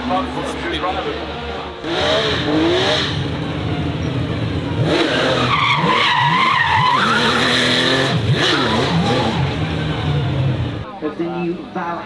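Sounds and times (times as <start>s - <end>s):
engine revving: 1.8s - 10.9s
tyres squealing: 5.0s - 9.9s.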